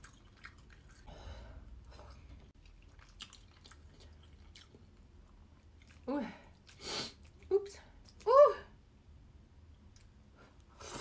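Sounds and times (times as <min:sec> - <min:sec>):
faint chewing of noodles: 0:00.0 - 0:01.1, 0:01.8 - 0:08.2.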